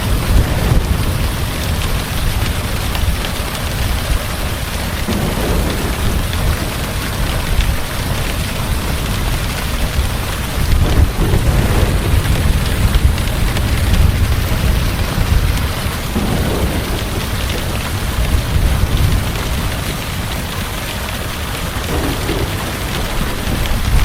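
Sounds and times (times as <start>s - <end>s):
heavy rain: 0.0s - 24.0s
thunder rumble: 0.0s - 24.0s.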